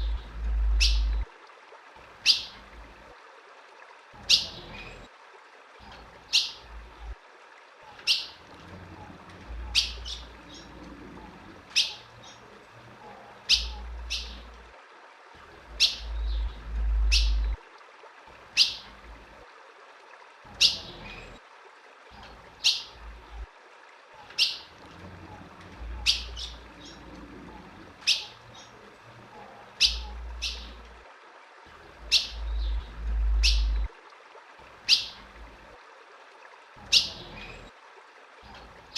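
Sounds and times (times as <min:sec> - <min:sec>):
bird chip calls: 0:00.0 - 0:01.3, 0:07.9 - 0:08.4, 0:09.7 - 0:10.7, 0:11.7 - 0:12.4, 0:13.4 - 0:14.5, 0:15.7 - 0:17.6, 0:24.3 - 0:24.7, 0:25.9 - 0:27.0, 0:28.0 - 0:28.8, 0:29.8 - 0:30.8, 0:32.0 - 0:33.9, 0:34.9 - 0:35.2, 0:36.8 - 0:37.7
low rumble: 0:00.0 - 0:01.3, 0:16.0 - 0:17.6, 0:32.4 - 0:33.9.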